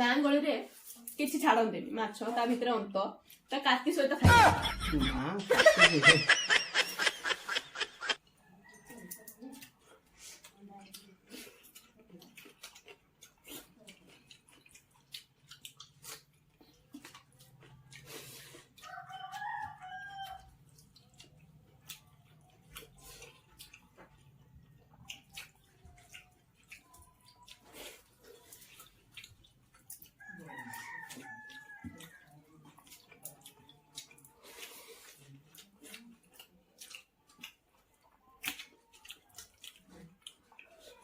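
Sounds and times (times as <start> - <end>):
clicks and drips of eating: 3.2 - 3.6, 8.2 - 41.0
rooster crowing: 18.8 - 20.5, 30.2 - 32.1.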